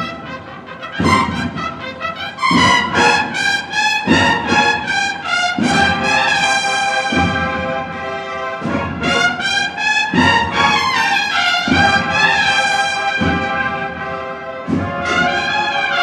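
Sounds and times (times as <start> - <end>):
brass band playing a march: 0.0 - 16.0.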